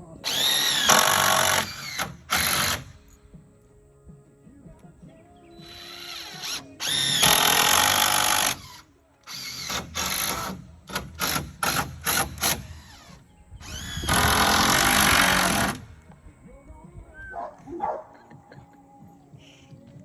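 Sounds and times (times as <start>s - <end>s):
power drill whining in bursts: 0.2s - 2.9s, 5.6s - 15.8s.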